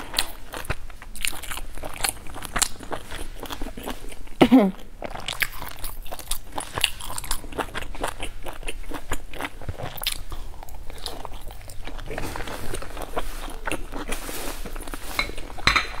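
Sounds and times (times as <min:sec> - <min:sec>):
person biting and chewing: 0:05.0 - 0:16.0.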